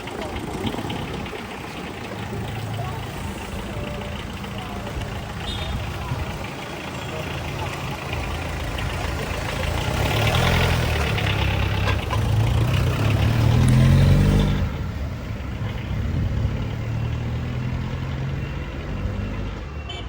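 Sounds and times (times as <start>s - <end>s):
car engine accelerating: 0.0s - 19.7s.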